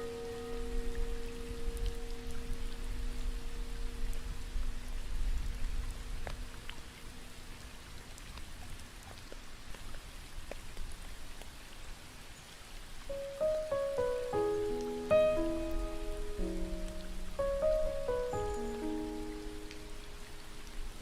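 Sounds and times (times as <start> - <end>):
piano notes: 0.0 - 5.8, 13.1 - 21.0
steady rain falling: 0.0 - 21.0
raindrops ticking: 5.2 - 7.4, 13.0 - 21.0.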